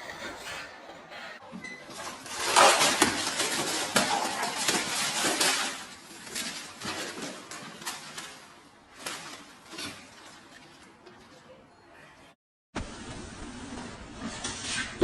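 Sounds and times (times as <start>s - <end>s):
hard objects clattering together: 1.5s - 10.6s.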